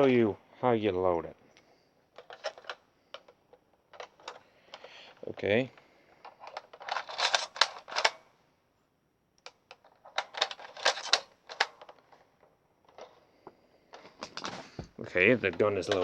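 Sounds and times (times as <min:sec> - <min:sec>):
plastic clattering clicks: 0:01.6 - 0:08.2, 0:09.4 - 0:12.2.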